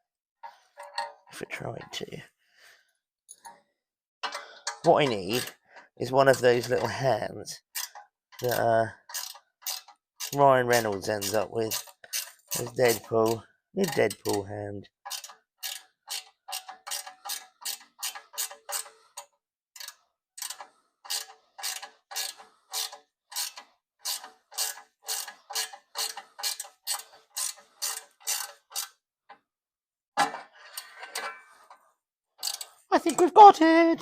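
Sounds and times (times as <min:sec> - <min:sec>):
ratchet wrench clicking: 0:07.8 - 0:13.4, 0:15.1 - 0:29.0, 0:32.4 - 0:32.8.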